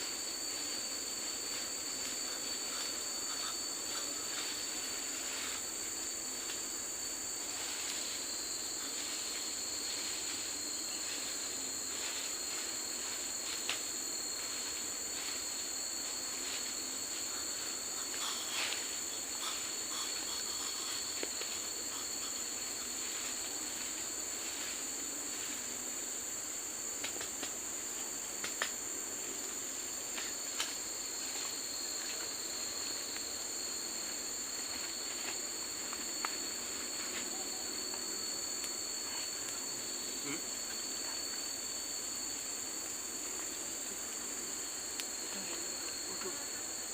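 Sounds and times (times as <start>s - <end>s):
high-pitched insect drone: 0.0s - 46.9s
faint sharp clicks: 44.9s - 45.1s.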